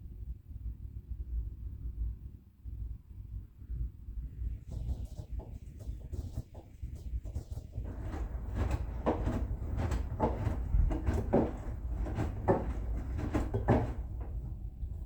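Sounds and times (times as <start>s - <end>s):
washing machine rumble: 4.3s - 15.0s
laundry swishing in drum: 4.6s - 15.0s.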